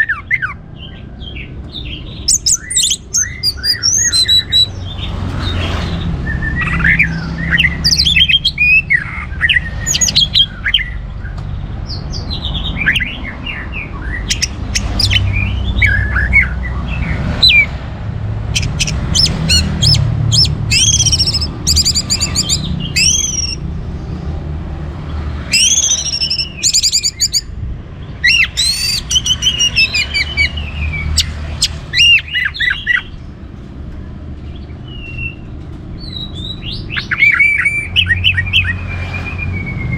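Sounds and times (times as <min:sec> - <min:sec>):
thrush singing: 0:12.0 - 0:23.9, 0:24.8 - 0:33.3.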